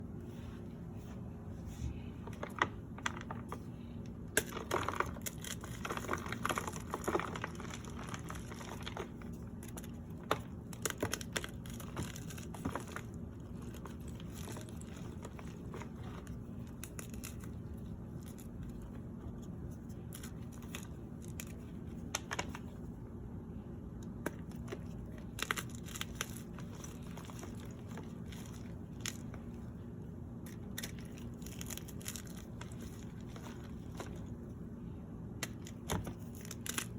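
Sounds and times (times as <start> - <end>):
crumbly material crushed by hand: 2.2 - 23.0, 24.0 - 36.9.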